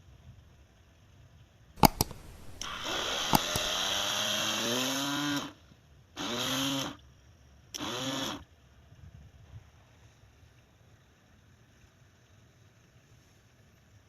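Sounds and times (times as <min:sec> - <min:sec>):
sharp clicks: 0:01.8 - 0:04.0
small electric motor whining: 0:02.4 - 0:05.5, 0:06.2 - 0:07.0, 0:07.8 - 0:08.4.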